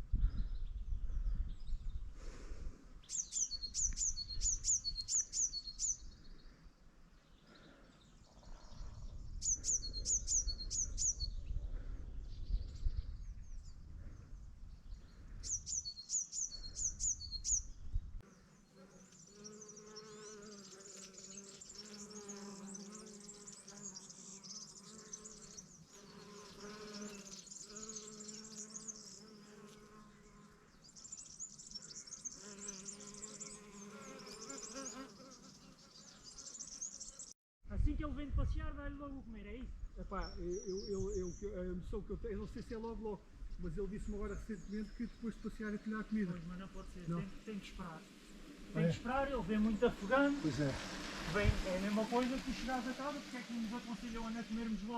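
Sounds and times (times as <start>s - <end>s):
small birds singing: 0.0s - 2.3s, 3.0s - 37.4s, 39.3s - 50.4s
wind rumble on microphone: 0.0s - 3.0s, 8.4s - 15.7s, 16.7s - 18.2s, 37.6s - 42.8s, 51.2s - 51.8s.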